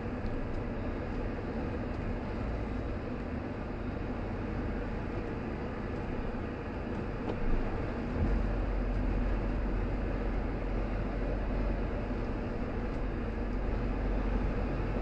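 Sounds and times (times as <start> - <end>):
car driving road noise: 0.0 - 15.0
deep low rumble: 7.2 - 15.0.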